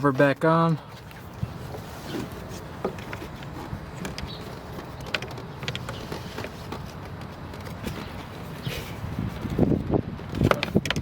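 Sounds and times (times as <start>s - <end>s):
plastic clicks and knocks: 2.8s - 8.2s, 10.2s - 11.0s.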